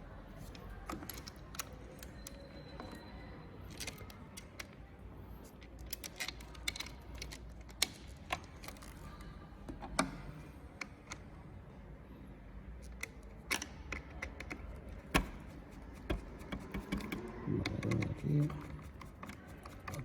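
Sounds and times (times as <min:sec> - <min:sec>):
small parts and tools clicking: 0:05.4 - 0:09.0, 0:12.8 - 0:20.0.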